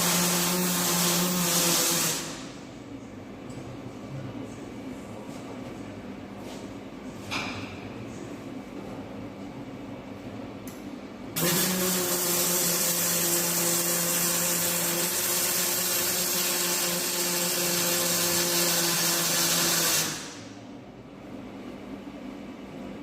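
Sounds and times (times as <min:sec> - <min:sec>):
electric power tool hissing: 0:11.4 - 0:20.5.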